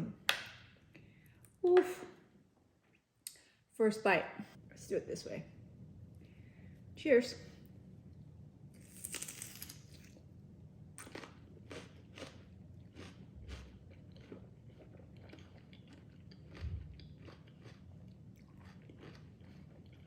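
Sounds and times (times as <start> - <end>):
crunchy chewing: 11.0 - 20.0.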